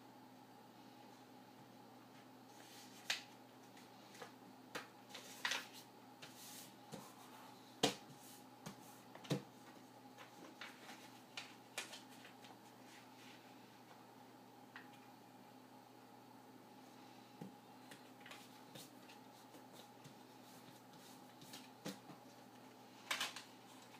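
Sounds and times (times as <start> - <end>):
faint steady hum: 0.0 - 23.9
paper crackling and folding: 5.1 - 6.4, 10.2 - 13.4.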